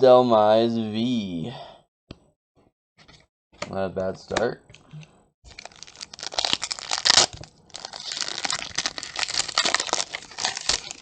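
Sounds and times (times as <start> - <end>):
foil wrapper crinkling and tearing: 5.5 - 11.0.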